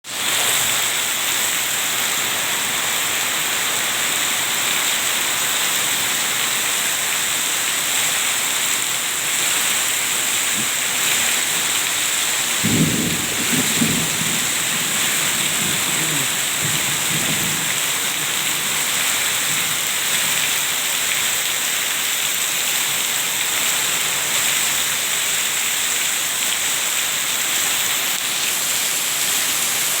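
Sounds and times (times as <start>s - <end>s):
heavy rain pouring: 0.0s - 30.0s
thunder rumble: 12.6s - 18.3s.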